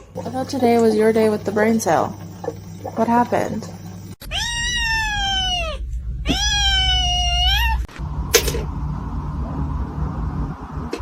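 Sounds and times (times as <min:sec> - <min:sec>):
cat meowing: 0:04.2 - 0:07.9.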